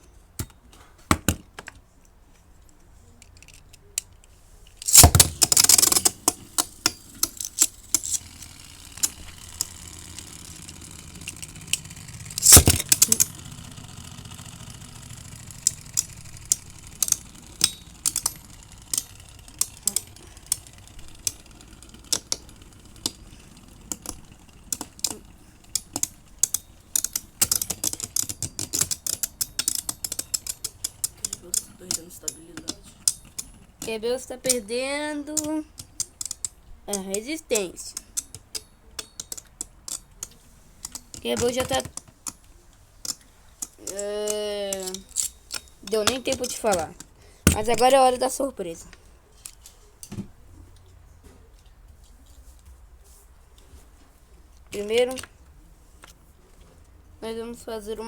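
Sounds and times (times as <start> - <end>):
quick clicks and knocks: 4.8 - 33.9
spinning tops clashing: 4.8 - 34.7
loud clatter: 4.9 - 25.2.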